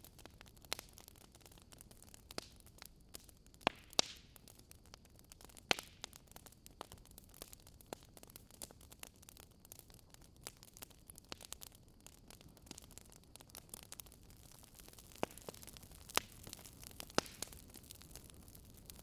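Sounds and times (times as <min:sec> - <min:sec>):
campfire crackling: 0:00.0 - 0:19.0
sharp fire pops: 0:03.6 - 0:04.3, 0:13.4 - 0:19.0.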